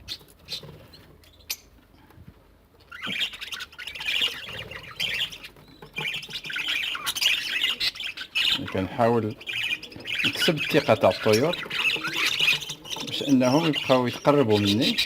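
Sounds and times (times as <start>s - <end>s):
parrots squawking and chirping: 0.0s - 1.8s, 2.8s - 15.0s.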